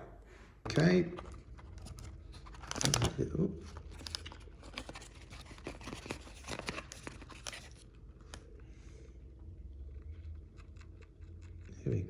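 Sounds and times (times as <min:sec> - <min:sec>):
package tearing and crinkling: 0:00.7 - 0:07.8.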